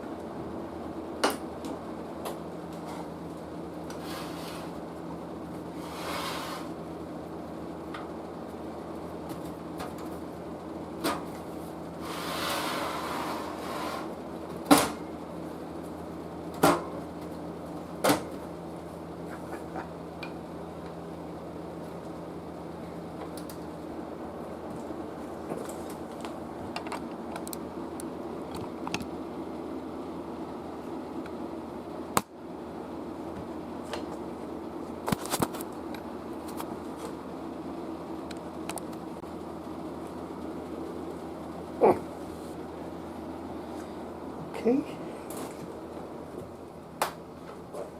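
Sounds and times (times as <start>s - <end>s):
low electrical hum: 0.0s - 47.9s.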